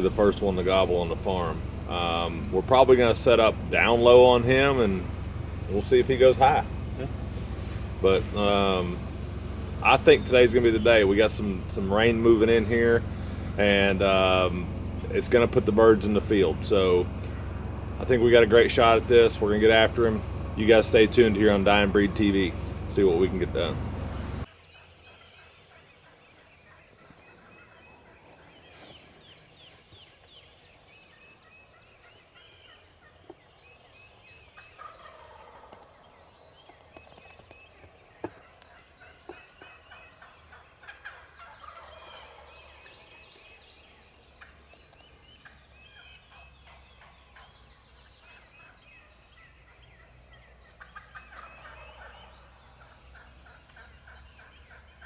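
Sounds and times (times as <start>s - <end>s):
turkey gobbling: 0.0s - 28.9s, 31.7s - 55.0s
songbirds chirping: 0.0s - 55.0s.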